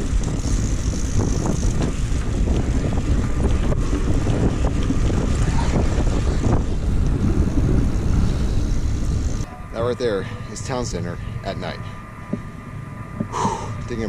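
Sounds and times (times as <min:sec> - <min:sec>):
bicycle clicks and knocks: 0:00.0 - 0:09.5
wind buffeting microphone: 0:00.0 - 0:14.0.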